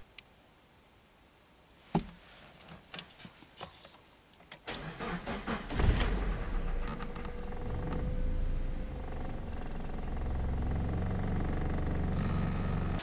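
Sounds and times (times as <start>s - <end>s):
car engine starting: 4.7s - 13.0s
car starter cranking: 4.7s - 13.0s.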